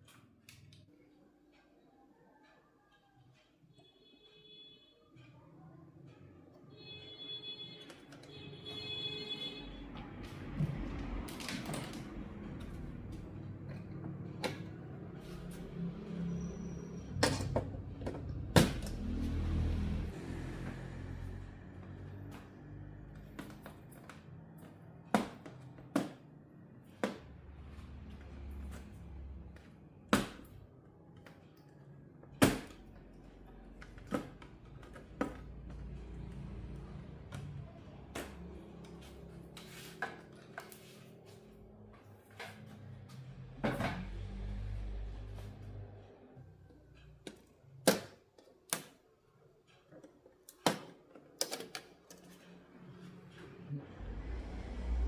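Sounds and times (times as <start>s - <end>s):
tools clicking and knocking: 49.7s - 52.6s.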